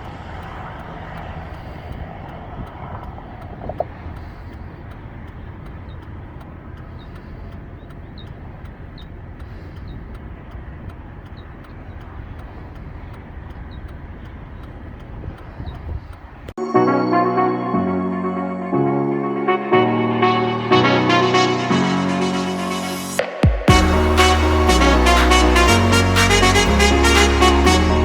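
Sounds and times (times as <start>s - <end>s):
faint regular ticking: 0.0s - 16.6s
road and engine noise in cab: 0.0s - 16.6s.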